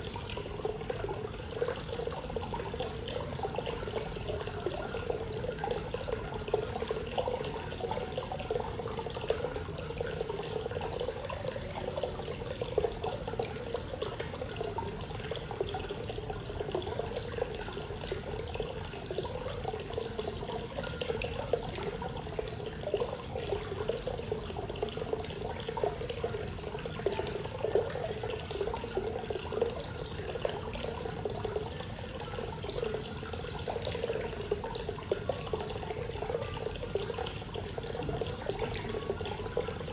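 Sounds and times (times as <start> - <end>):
water pouring and splashing: 0.0 - 39.9.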